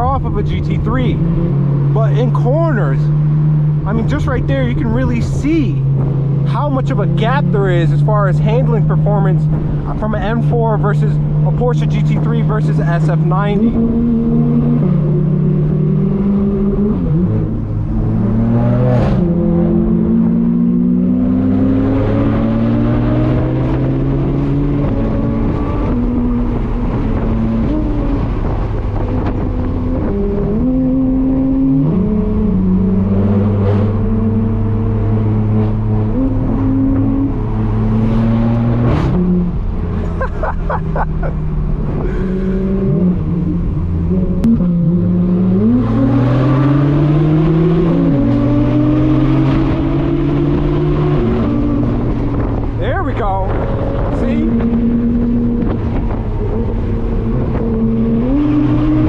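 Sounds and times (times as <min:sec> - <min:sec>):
car engine accelerating through gears: 0:00.0 - 0:59.0
exhaust pops and crackles: 0:51.9 - 0:57.8.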